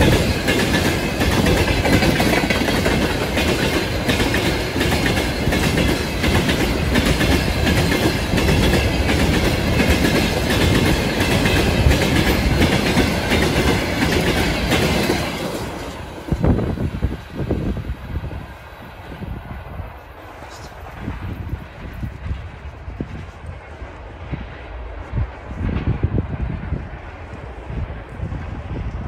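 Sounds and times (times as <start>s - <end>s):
train wheels clattering on rails: 0.0s - 29.0s.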